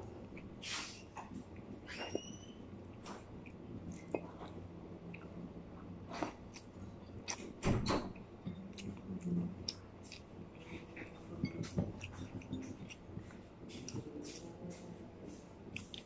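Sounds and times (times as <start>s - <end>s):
person chewing chicken: 6.1s - 7.5s, 8.5s - 14.5s, 15.3s - 16.0s.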